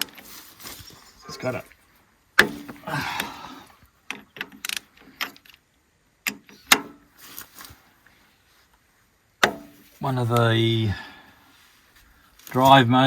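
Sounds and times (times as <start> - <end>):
scraping rustle: 0.0 - 2.9, 6.5 - 12.9.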